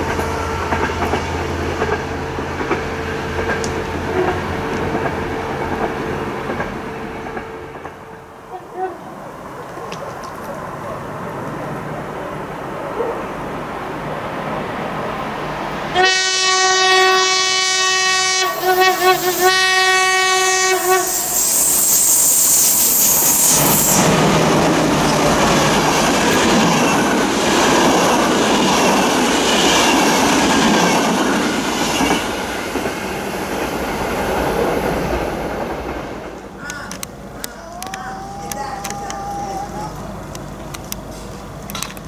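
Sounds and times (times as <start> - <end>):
train wheels rushing and clattering: 0.0 - 8.1, 20.8 - 39.4
train horn blasts: 15.9 - 22.0.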